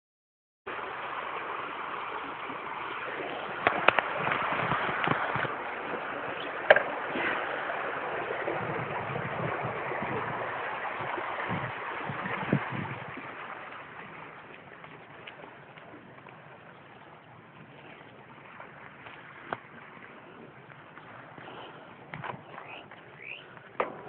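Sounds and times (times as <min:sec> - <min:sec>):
bike knocking and rattling: 0:06.7 - 0:06.9, 0:21.4 - 0:24.0.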